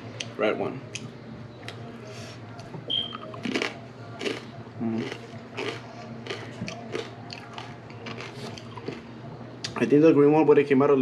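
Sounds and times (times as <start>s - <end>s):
chewing crunchy chip: 3.3s - 9.1s.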